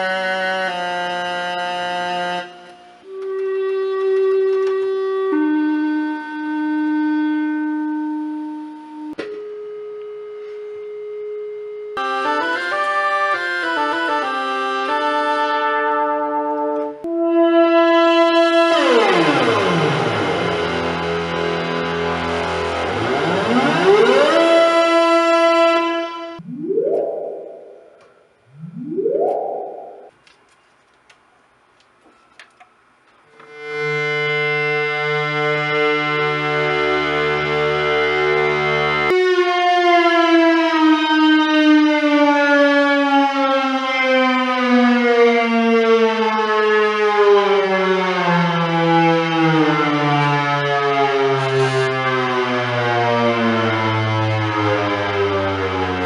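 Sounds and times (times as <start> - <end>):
synthesizer rising pitch sweep: 22.7 - 25.6, 26.2 - 30.2
buzzy synthesizer tone: 22.7 - 30.2
tone gliding downward: 26.4 - 30.1.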